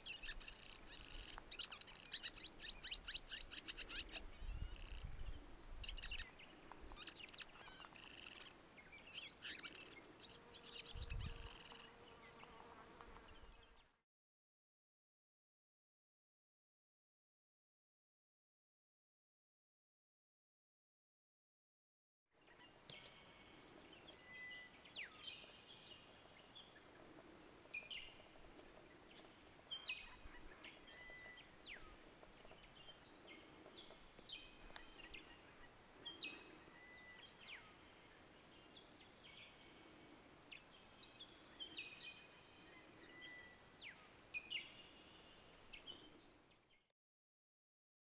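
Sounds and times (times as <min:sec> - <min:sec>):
faint bird chirps and trills: 0:00.0 - 0:12.7, 0:22.4 - 0:46.9.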